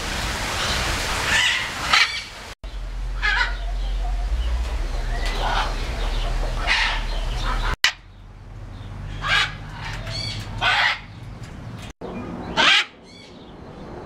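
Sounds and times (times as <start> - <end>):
bird giving harsh calls: 1.3 - 8.2, 8.9 - 11.3.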